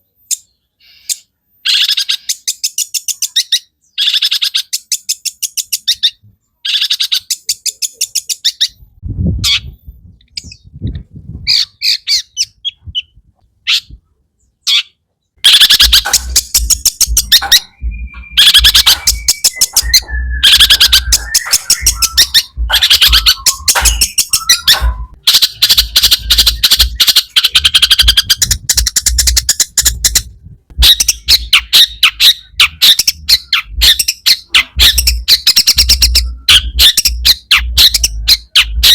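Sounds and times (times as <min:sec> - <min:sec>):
shrike singing harsh chattering song: 0:15.4 - 0:38.9
sliding whistle: 0:17.2 - 0:26.8.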